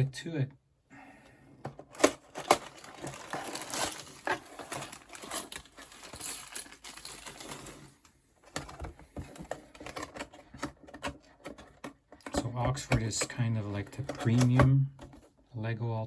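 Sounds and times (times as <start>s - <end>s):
cardboard and plastic bags rustling: 1.7s - 11.6s.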